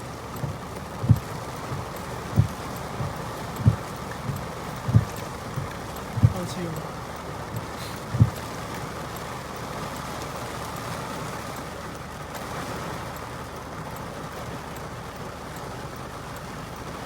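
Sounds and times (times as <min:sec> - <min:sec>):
road noise: 0:00.0 - 0:13.0
car engine rumble: 0:00.0 - 0:17.0.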